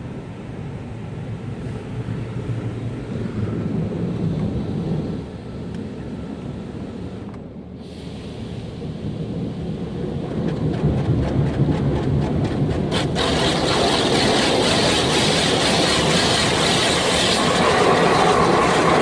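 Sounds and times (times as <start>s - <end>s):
low rumble: 8.5s - 15.6s
water drumming on car: 9.3s - 19.0s
hissing spray: 10.3s - 19.0s.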